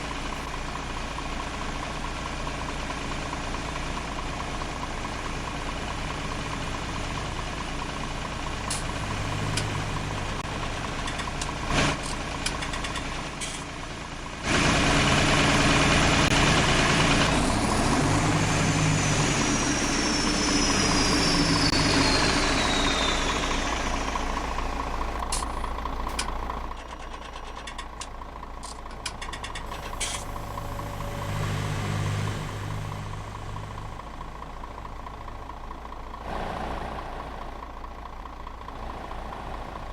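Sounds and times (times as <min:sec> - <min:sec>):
tractor engine revving: 0:14.4 - 0:39.9.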